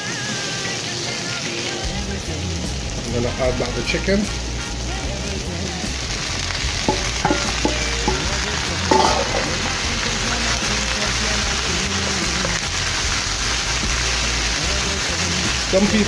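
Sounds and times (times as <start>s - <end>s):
food sizzling in a frying pan: 0.0s - 16.0s
utensil knocking against pan: 5.8s - 9.9s.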